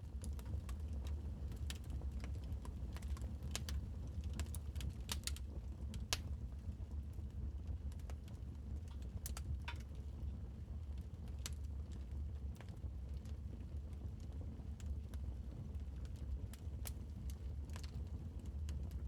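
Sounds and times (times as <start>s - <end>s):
wood fire popping and snapping: 0.2s - 6.4s.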